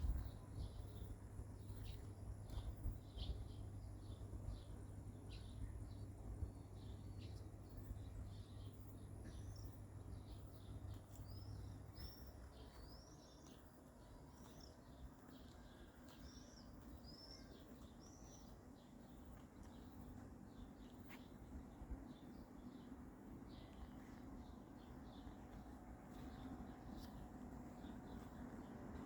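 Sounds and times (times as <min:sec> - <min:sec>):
quiet outdoor background noise: 0:00.0 - 0:29.0
faint bird chirps: 0:07.1 - 0:21.5.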